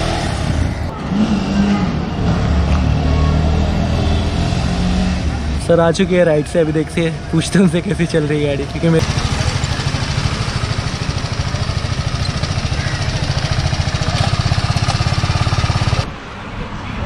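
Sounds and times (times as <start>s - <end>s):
motorcycle engine idling: 7.9s - 16.1s.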